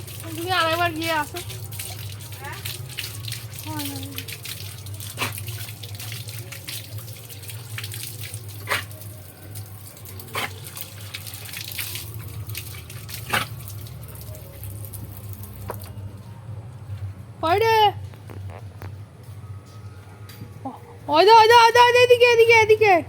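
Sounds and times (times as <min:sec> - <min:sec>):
tap water running and splashing: 0:00.0 - 0:16.0.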